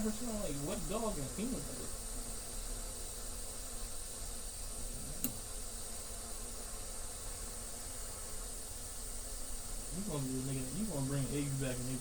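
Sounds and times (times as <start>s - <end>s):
torch flame hissing: 0.0s - 12.0s
sharp click: 5.2s - 5.4s.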